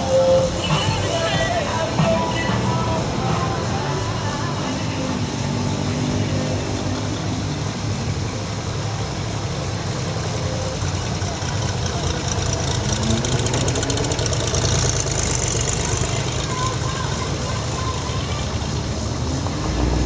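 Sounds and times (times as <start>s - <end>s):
car engines idling: 0.0s - 20.0s
engine revving with exhaust pulse: 9.7s - 16.7s, 18.8s - 20.0s.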